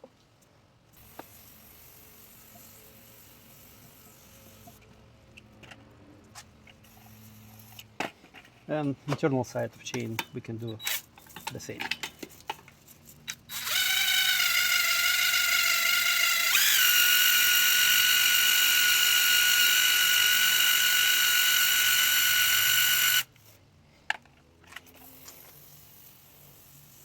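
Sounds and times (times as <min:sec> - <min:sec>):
electric drill whine: 0:13.5 - 0:23.3.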